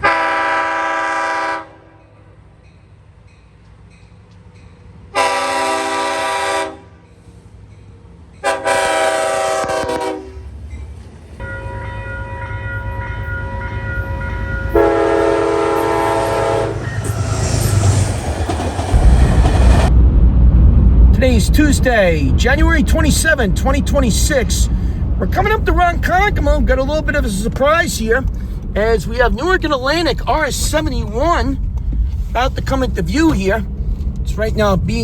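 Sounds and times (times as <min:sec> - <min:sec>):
train horn blasts: 0:00.0 - 0:02.3, 0:05.1 - 0:07.0, 0:08.4 - 0:10.5, 0:11.4 - 0:18.0
low rumble of a train: 0:00.0 - 0:35.0.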